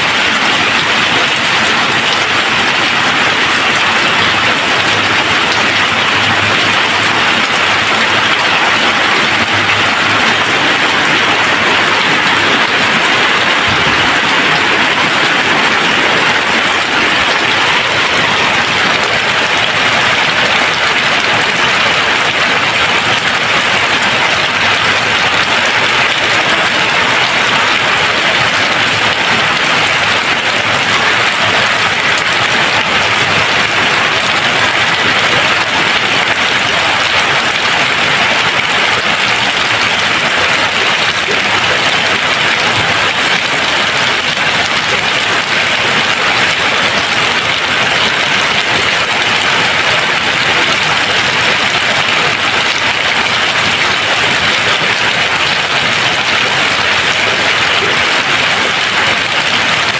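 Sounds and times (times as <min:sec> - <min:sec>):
steady dense rain: 0:00.0 - 0:59.9.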